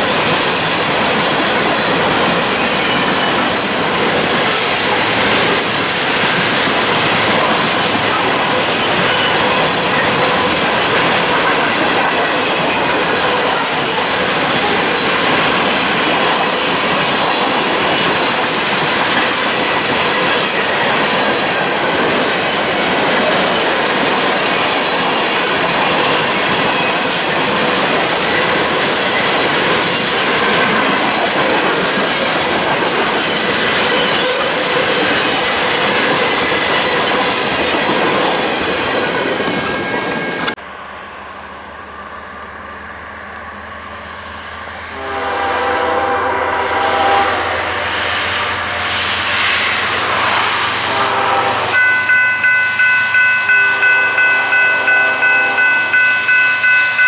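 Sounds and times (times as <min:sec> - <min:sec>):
clickety-clack over rail joints: 0:00.0 - 0:40.6
train wheels on rail: 0:00.0 - 0:57.0.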